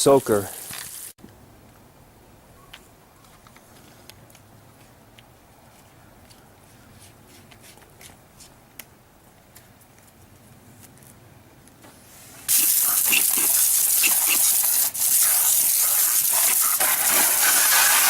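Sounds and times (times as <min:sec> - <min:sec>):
water spraying hard from a wand: 0:12.5 - 0:18.0.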